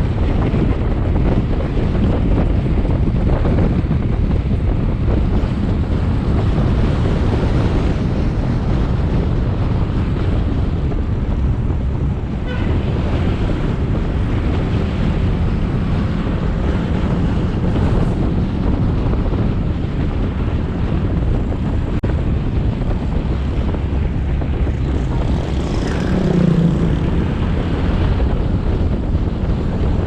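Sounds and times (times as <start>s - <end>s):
road noise: 0.0s - 30.0s
wind buffeting microphone: 0.0s - 30.0s
motorbike engine: 22.9s - 29.8s.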